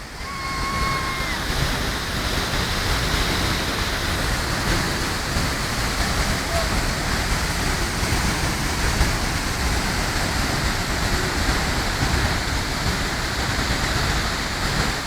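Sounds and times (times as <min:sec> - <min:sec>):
waterfall pouring: 0:00.0 - 0:15.0.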